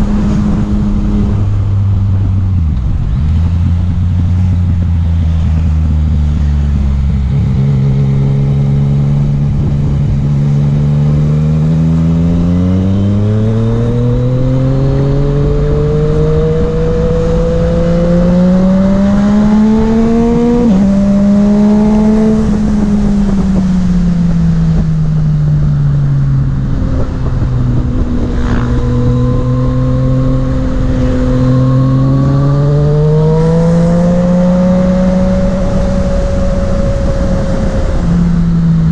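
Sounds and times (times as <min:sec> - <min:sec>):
motorcycle engine revving: 0:00.0 - 0:38.9
wind on microphone: 0:00.0 - 0:38.9.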